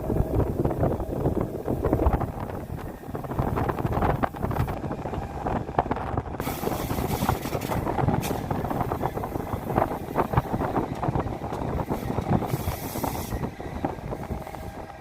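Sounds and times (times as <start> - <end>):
train rumbling and clattering: 0.0 - 15.0
hiss: 6.4 - 9.1, 11.9 - 13.5.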